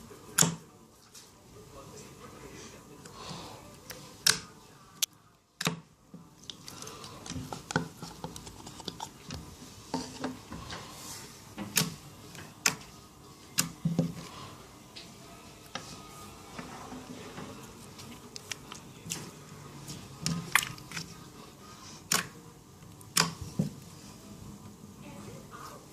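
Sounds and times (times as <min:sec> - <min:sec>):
sticky slime squishing: 0:03.8 - 0:24.0.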